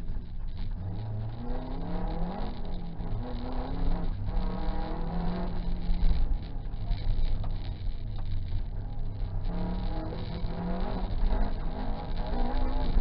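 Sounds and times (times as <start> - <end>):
car engine revving hard: 0.8 - 7.3, 9.2 - 13.0.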